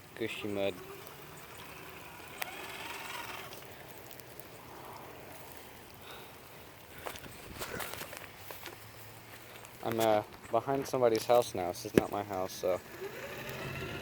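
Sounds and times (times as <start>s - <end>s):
rain hiss: 0.0s - 9.8s
electric motor whirring: 0.7s - 3.6s, 12.7s - 14.0s.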